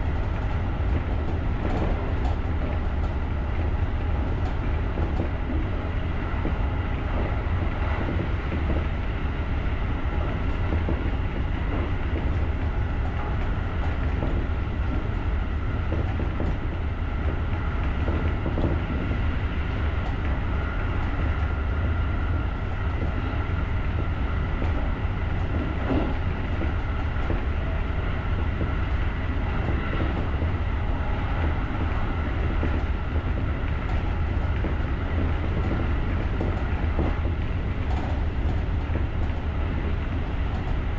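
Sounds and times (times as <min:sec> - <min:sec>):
electric train rumbling: 0:00.0 - 0:40.9.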